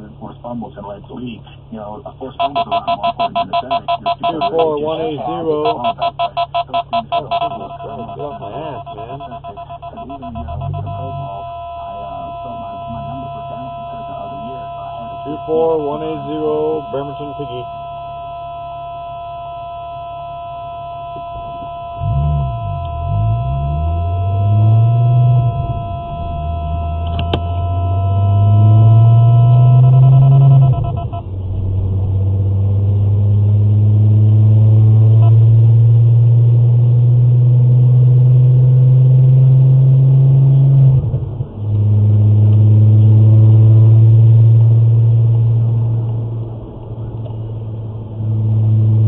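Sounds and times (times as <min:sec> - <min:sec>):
electronic alert tones: 0:02.4 - 0:31.2
car engine accelerating: 0:19.6 - 0:49.0.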